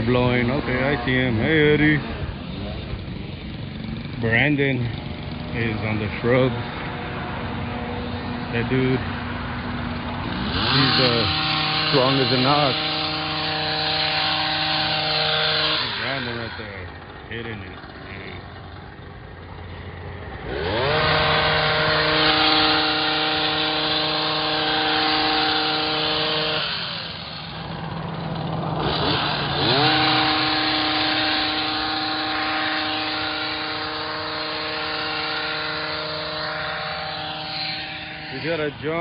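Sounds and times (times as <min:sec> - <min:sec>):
hedge trimmer engine revving: 0:00.0 - 0:39.0.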